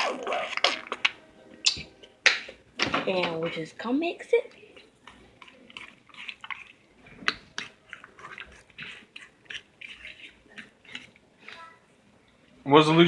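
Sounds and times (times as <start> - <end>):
wet slime squelches: 4.6 - 11.8.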